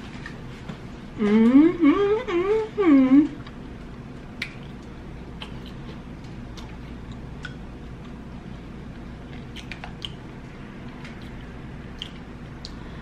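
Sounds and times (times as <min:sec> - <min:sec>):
steady low hum: 0:00.0 - 0:13.0
chewing with mouth clicks: 0:03.4 - 0:12.9.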